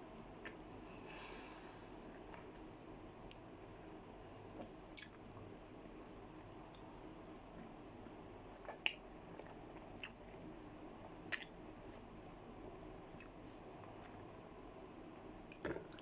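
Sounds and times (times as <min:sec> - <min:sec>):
low steady hiss: 0:00.0 - 0:16.0
soft chewing: 0:02.0 - 0:12.1, 0:13.1 - 0:14.3.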